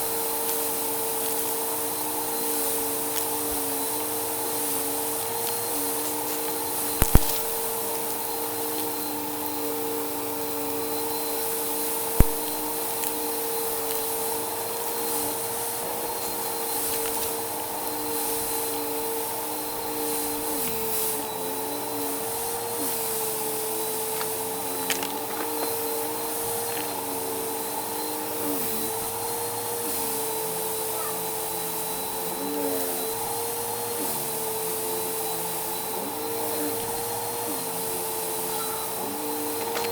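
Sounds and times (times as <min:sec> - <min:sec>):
vacuum cleaner running: 0:00.0 - 0:39.9
sharp clicks: 0:07.0 - 0:07.6, 0:12.2 - 0:13.2.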